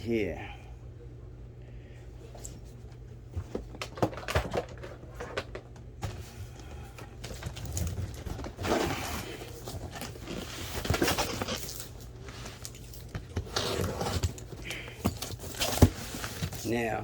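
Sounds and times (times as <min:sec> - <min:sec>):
cardboard box being opened: 0:07.3 - 0:16.8.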